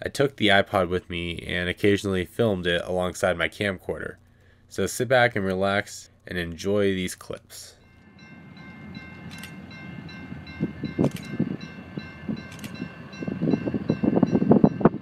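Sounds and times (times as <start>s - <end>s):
freight train rumbling: 7.9s - 15.0s
sharp clicks: 9.2s - 9.6s, 11.0s - 11.4s, 12.5s - 12.9s.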